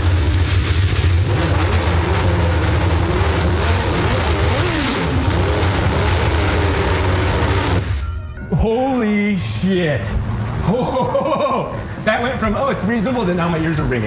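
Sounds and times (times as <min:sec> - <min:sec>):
racing car engine revving: 0:00.0 - 0:08.0.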